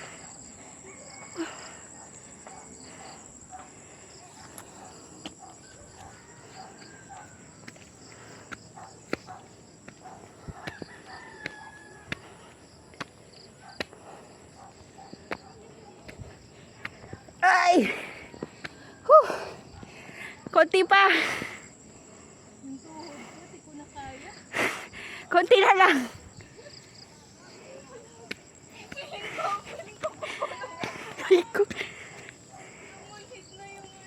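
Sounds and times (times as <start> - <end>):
rooster crowing: 0.8 - 1.8, 5.6 - 7.8, 10.6 - 12.2
footsteps in flip-flops on dirt: 2.4 - 20.6, 25.9 - 34.0.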